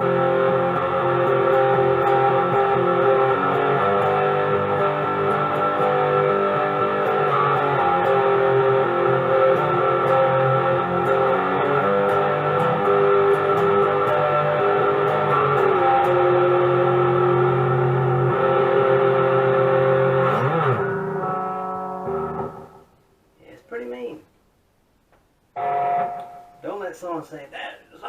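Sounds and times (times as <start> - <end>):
distorted electric guitar: 0.0 - 23.0, 25.6 - 26.6
person speaking: 23.4 - 24.4, 26.6 - 28.0.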